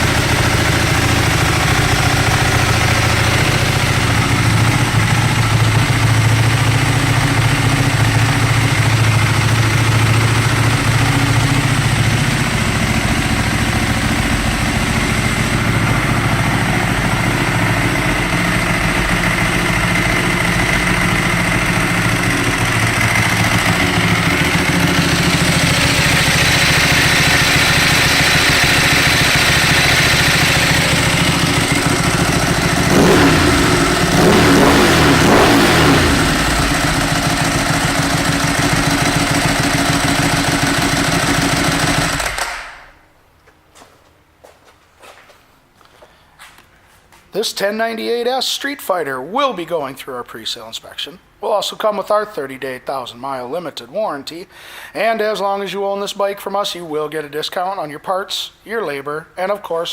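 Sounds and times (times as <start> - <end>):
motorcycle engine idling: 0.0 - 42.6.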